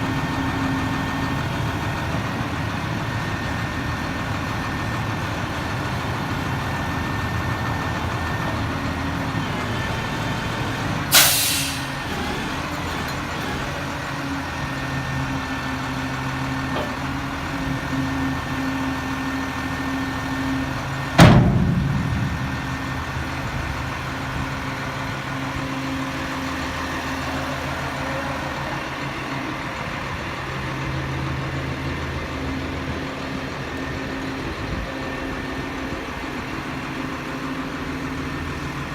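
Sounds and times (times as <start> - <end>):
diesel truck engine idling: 0.0 - 38.9
air hiss: 11.1 - 12.0
loud metallic clunk: 21.1 - 24.6.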